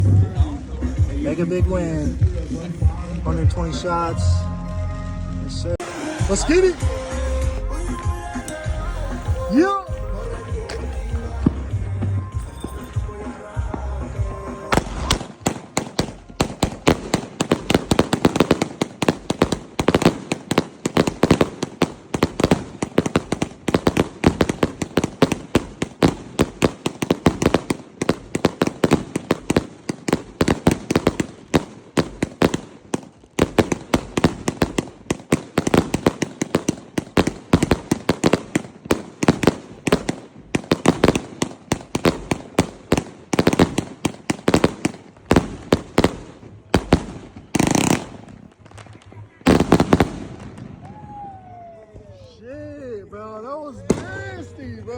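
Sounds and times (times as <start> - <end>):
firework bangs in rapid succession: 13.6 - 51.3.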